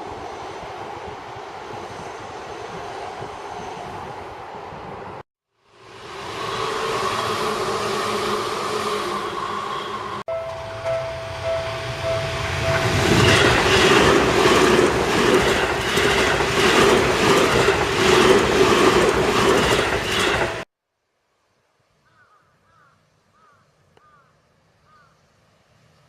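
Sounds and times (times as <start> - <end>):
two-note tone: 10.3 - 13.3
train wheels clacking on rail joints: 12.4 - 20.6.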